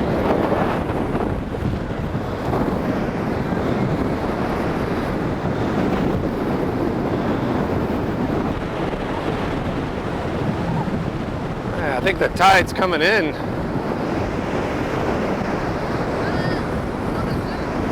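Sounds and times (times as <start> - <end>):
surf breaking: 0.0 - 17.9
wind buffeting microphone: 0.0 - 17.9.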